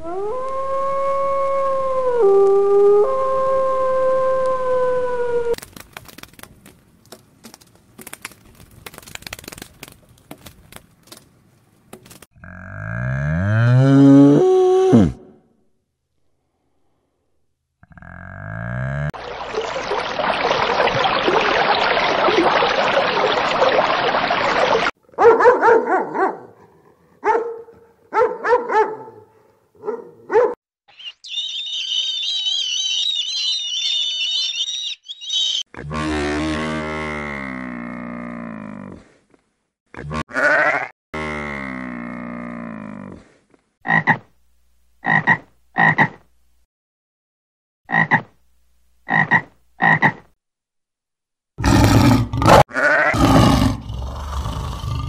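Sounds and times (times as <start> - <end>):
dog barking in quick yips: 25.2 - 26.4, 29.8 - 30.6.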